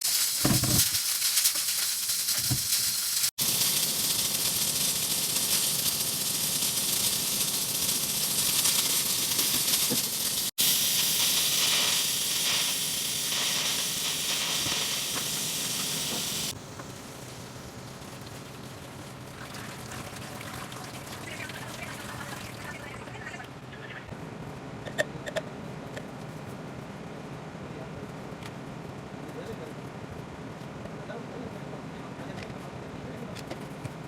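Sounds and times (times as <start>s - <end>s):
steady hissing noise: 0.0s - 19.2s.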